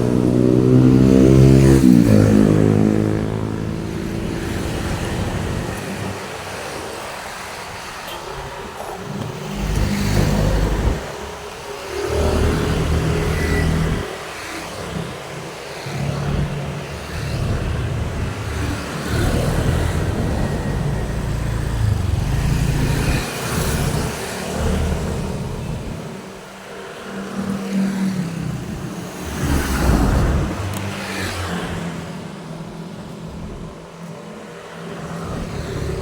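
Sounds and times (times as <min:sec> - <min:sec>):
tyre and road noise: 0:00.0 - 0:36.0
vehicles passing: 0:00.0 - 0:36.0.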